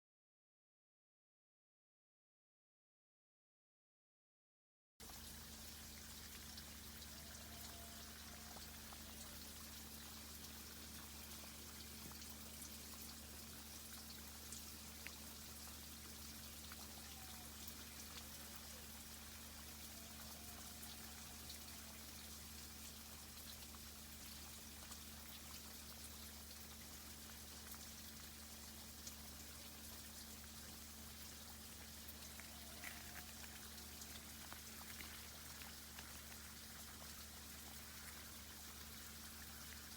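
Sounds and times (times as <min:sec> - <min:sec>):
water trickling and dripping: 0:05.0 - 0:39.9
tiny scattered ticks: 0:13.9 - 0:22.0, 0:31.2 - 0:39.9.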